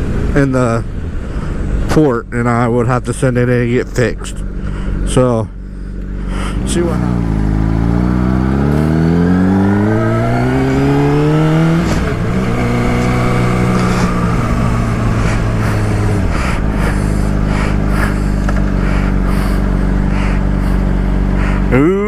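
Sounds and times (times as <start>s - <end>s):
motorcycle engine accelerating: 4.3s - 22.0s
wind rushing over microphone: 8.7s - 19.6s.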